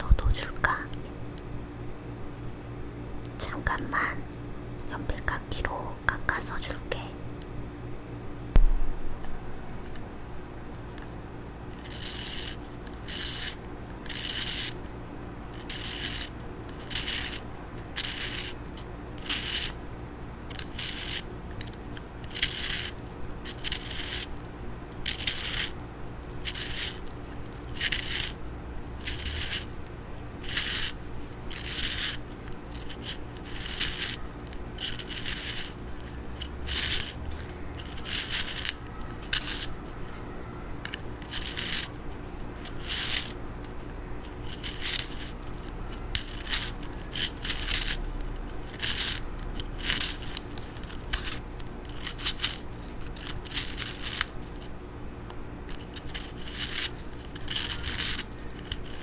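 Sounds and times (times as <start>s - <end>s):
pencil sharpener rasping scrapes: 11.8s - 14.8s, 15.6s - 17.4s, 20.5s - 24.3s, 25.0s - 25.7s, 26.4s - 27.0s, 27.7s - 28.4s, 29.0s - 29.7s, 30.4s - 34.2s, 34.8s - 35.8s, 36.4s - 37.2s, 37.8s - 39.7s, 41.2s - 41.9s, 42.6s - 43.3s, 44.3s - 45.5s, 46.1s - 48.0s, 48.7s - 54.3s, 55.7s - 59.0s.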